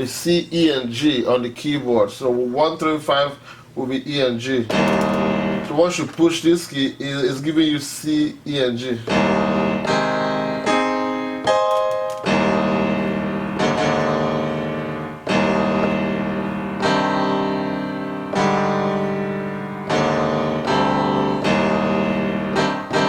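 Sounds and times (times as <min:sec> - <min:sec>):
piano-like chords: 0:04.7 - 0:06.1, 0:09.0 - 0:23.0.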